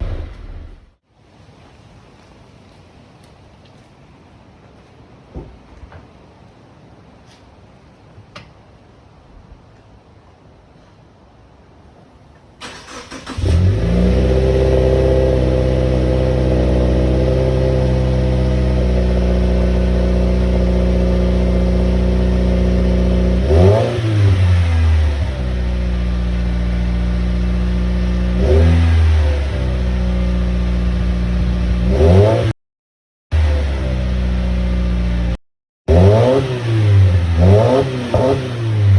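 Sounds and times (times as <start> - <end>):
engine revving: 0.0 - 0.9, 12.6 - 32.6, 33.3 - 38.9
car engine starting and idling: 0.0 - 1.0, 12.6 - 32.3.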